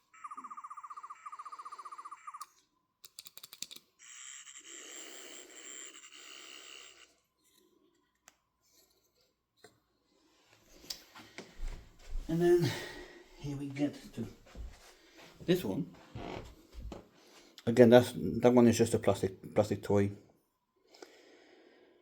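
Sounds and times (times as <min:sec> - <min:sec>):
toy electronic pulsing warble: 0:00.0 - 0:02.6, 0:04.0 - 0:07.2
faint clicks of toy being handled: 0:02.4 - 0:03.9.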